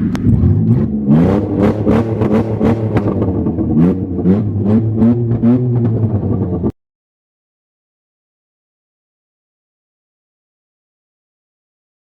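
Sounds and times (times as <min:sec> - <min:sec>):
car engine revving: 0:00.0 - 0:06.8.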